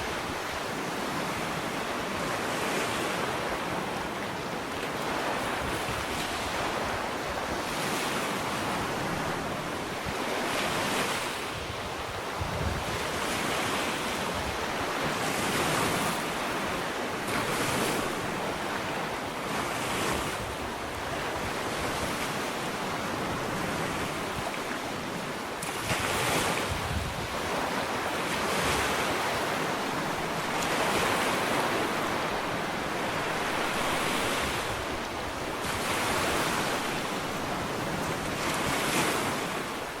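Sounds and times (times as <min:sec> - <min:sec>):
waves breaking on beach: 0:00.0 - 0:40.0
wind on microphone: 0:05.0 - 0:40.0.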